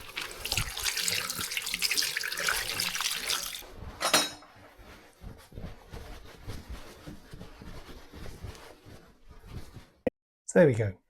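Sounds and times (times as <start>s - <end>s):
running water: 0.0s - 3.6s.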